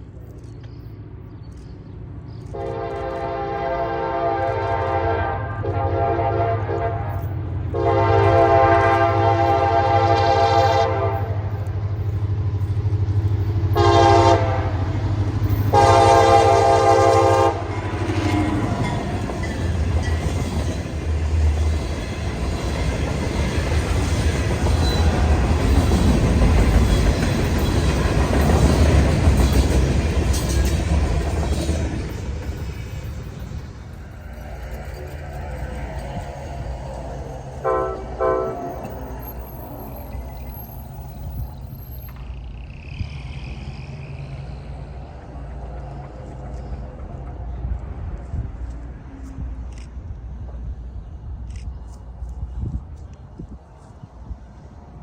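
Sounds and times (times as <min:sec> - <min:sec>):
train rumbling past: 0:00.0 - 0:55.0
locomotive horn: 0:02.5 - 0:11.7, 0:13.7 - 0:15.1, 0:15.7 - 0:18.6, 0:36.6 - 0:39.7.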